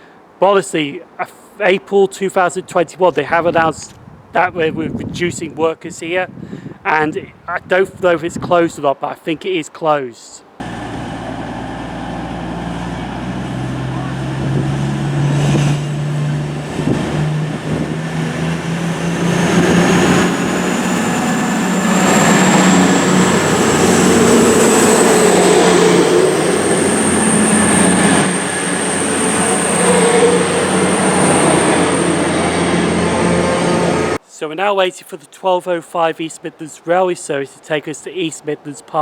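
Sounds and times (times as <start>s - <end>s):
high whine rising in pitch: 10.6s - 34.2s
train engine drone: 10.6s - 34.2s.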